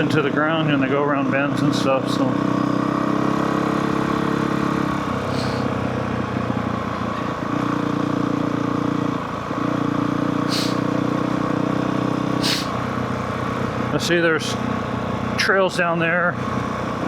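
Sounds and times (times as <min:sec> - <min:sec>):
dirt bike engine: 0:02.5 - 0:14.0
short hisses: 0:05.3 - 0:05.7, 0:10.4 - 0:10.9, 0:12.4 - 0:12.8.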